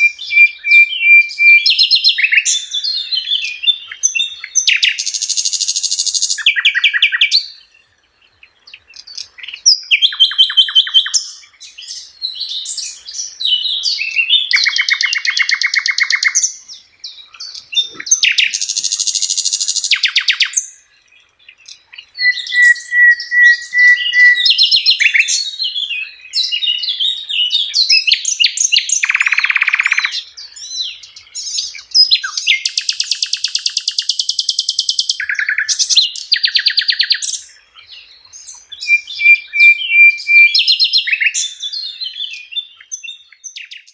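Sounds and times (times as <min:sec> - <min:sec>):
bird whistles and chatter: 0:00.0 - 0:07.5, 0:21.9 - 0:37.4, 0:38.4 - 0:43.9
songbird rapid rattling song: 0:00.0 - 0:43.9.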